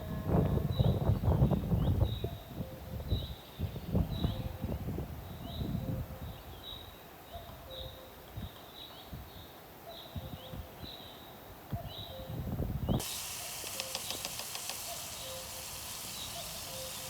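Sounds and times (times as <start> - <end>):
bird chirping: 12.9 - 17.0.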